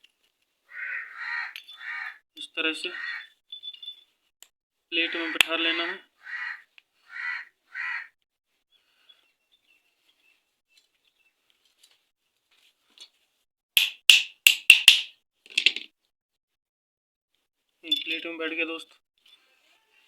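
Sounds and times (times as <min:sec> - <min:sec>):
sharp metal knocks: 0:13.8 - 0:15.1.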